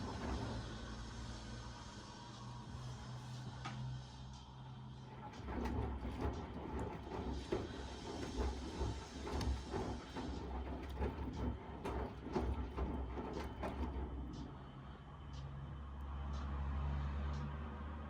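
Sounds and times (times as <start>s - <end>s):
washing machine motor hum: 0.0s - 2.0s, 4.9s - 15.8s
drum knocking and clatter: 5.2s - 14.6s.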